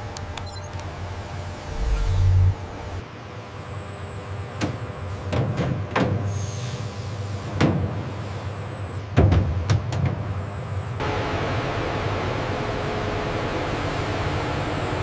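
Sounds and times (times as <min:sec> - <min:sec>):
factory machinery humming: 0:00.0 - 0:04.6, 0:10.8 - 0:15.0
faint high whine: 0:00.4 - 0:03.1.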